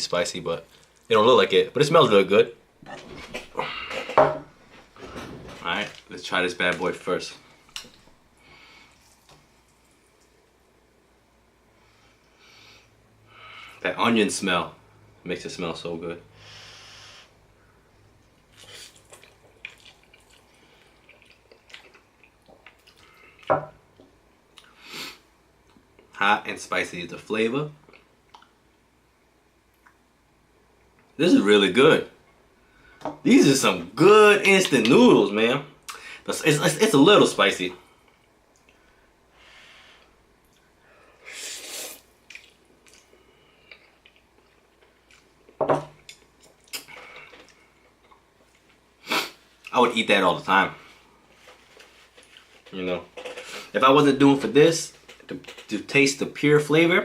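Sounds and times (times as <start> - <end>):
person eating noodles: 18.5 - 23.5, 41.2 - 45.3
slurping: 41.3 - 43.1.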